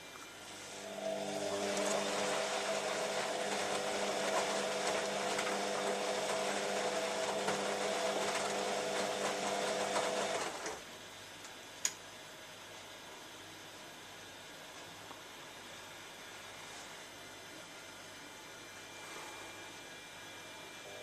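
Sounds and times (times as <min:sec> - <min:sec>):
washing machine motor whine: 0:00.0 - 0:11.2, 0:17.4 - 0:21.0.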